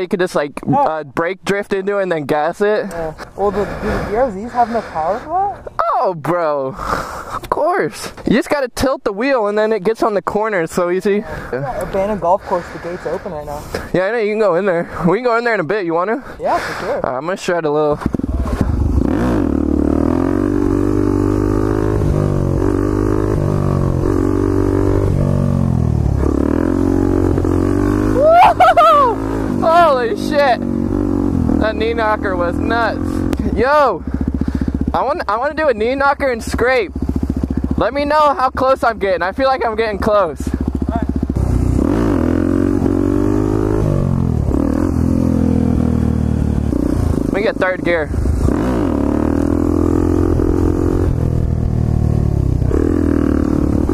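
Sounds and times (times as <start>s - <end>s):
motorcycle engine revving: 17.9s - 53.9s.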